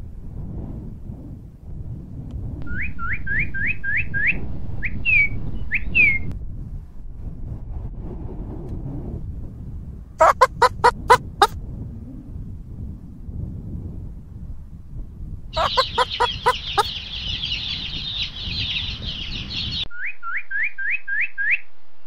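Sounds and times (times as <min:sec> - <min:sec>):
sharp loud bird calls: 0:10.2 - 0:11.5, 0:15.6 - 0:19.8.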